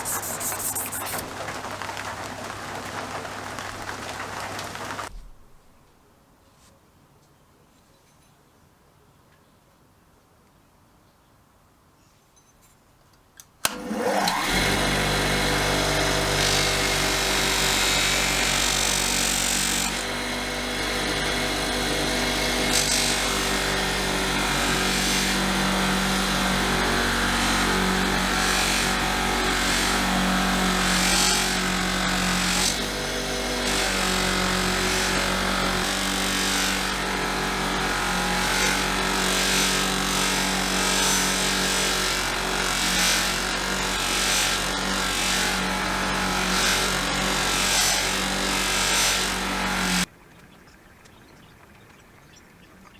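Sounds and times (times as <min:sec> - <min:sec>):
abrasive scratching on steel: 0:00.0 - 0:02.2
power tool motor whine: 0:00.0 - 0:05.1, 0:13.6 - 0:50.1.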